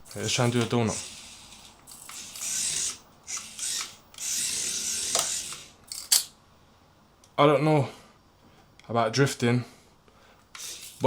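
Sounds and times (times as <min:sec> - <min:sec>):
toy car electric motor whirring: 0:00.1 - 0:06.3, 0:10.5 - 0:11.0.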